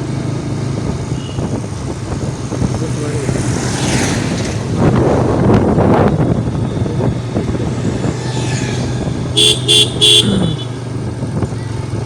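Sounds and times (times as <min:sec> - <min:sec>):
motorcycle engine running: 0:05.7 - 0:12.0
short horn beeps: 0:09.4 - 0:10.8.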